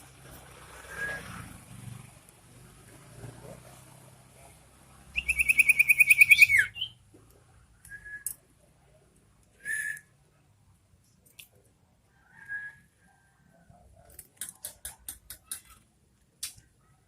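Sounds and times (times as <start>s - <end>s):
bird trilling: 5.2s - 7.0s.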